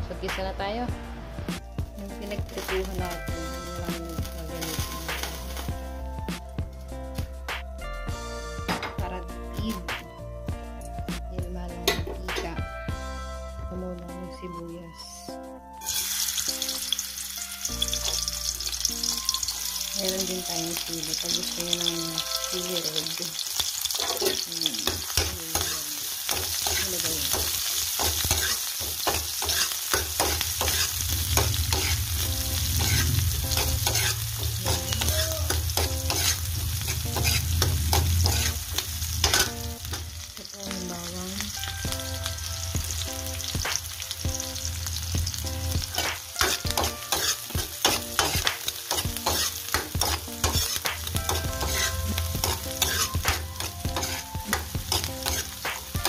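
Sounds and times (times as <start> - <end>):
onion sizzling in hot oil: 1.9 - 7.3, 15.8 - 56.0
spatula scraping and clicking on pan: 26.3 - 32.0, 32.8 - 40.1, 46.0 - 55.9.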